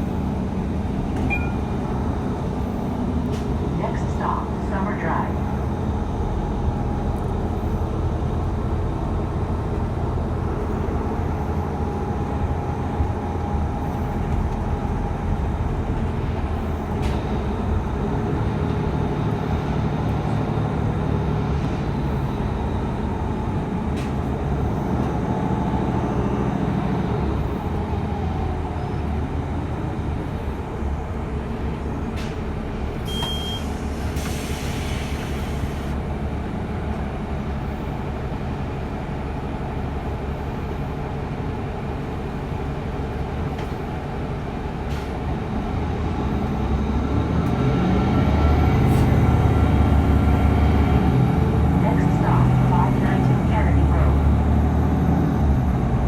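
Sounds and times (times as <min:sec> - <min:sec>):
bus engine and road rumble: 0:00.0 - 0:56.0
short high beep: 0:01.3 - 0:01.7, 0:33.1 - 0:33.7.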